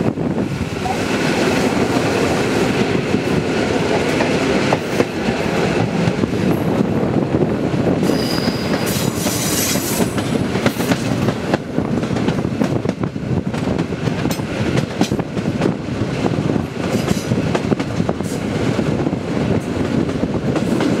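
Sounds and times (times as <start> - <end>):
train wheels rumbling on rails: 0.0 - 21.0
high wheel squeal: 8.1 - 10.0.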